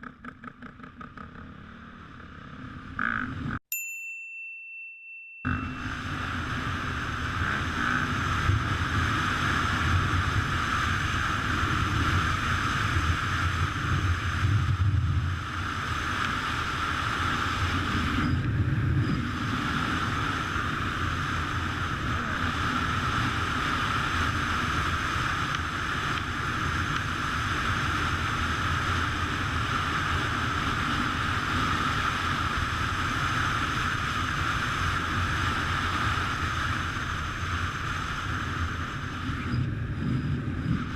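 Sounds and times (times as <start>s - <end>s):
low motorcycle rumble: 0.0s - 3.6s, 5.4s - 40.9s
wind rushing over microphone: 5.5s - 40.9s.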